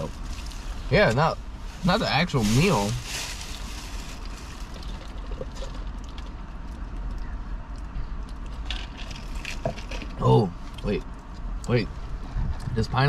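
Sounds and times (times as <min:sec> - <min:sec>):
rustles: 0:00.0 - 0:06.3
steady low rumble: 0:00.0 - 0:13.0.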